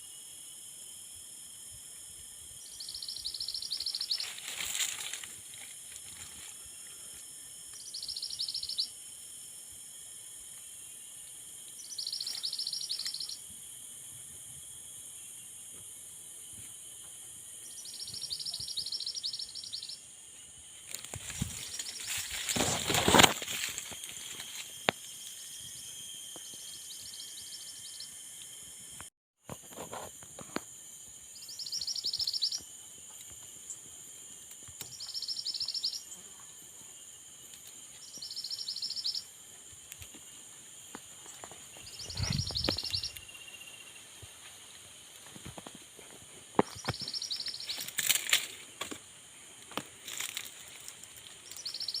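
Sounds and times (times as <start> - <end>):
high-pitched background whine: 0.0 - 52.0
songbird buzzy trill: 2.6 - 6.7, 7.7 - 9.1, 11.7 - 13.5, 17.6 - 28.8, 31.2 - 32.8, 34.8 - 36.4, 37.4 - 39.4, 41.2 - 44.1, 46.7 - 48.6, 50.1 - 52.0.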